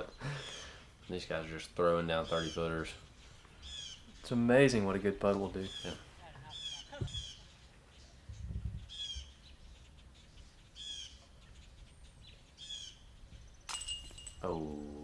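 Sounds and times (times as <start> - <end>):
bright jangle: 13.7 - 15.0
person speaking: 14.4 - 15.0.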